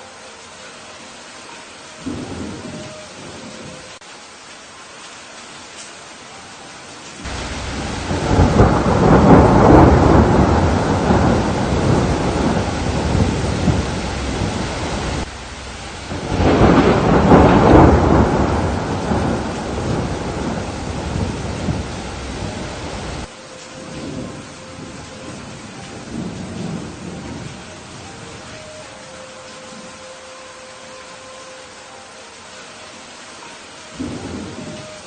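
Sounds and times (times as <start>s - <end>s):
steady rain: 0.0s - 35.0s
thunder rolling: 7.2s - 28.5s.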